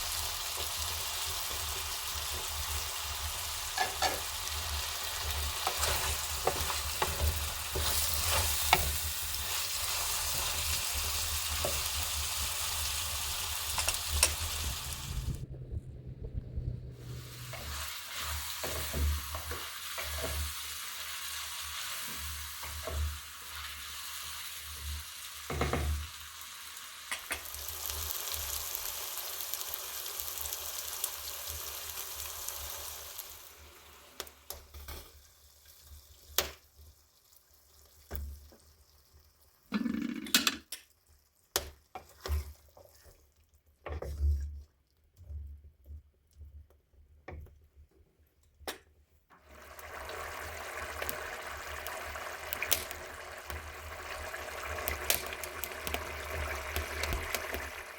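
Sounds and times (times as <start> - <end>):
food sizzling in oil: 0.0 - 15.4, 17.0 - 40.2, 49.4 - 57.9.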